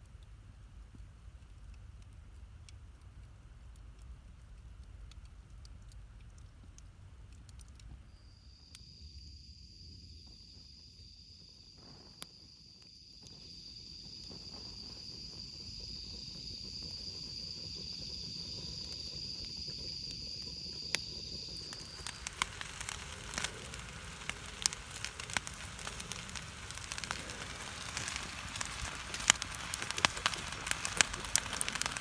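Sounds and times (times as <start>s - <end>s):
campfire crackling: 0.1s - 7.9s, 11.4s - 32.0s
cricket trilling: 8.1s - 32.0s.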